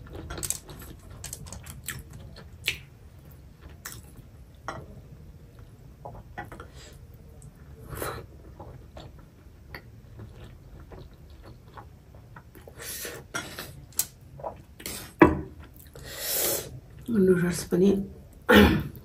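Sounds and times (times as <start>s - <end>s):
chewing with wet mouth clicks: 0.4s - 2.9s.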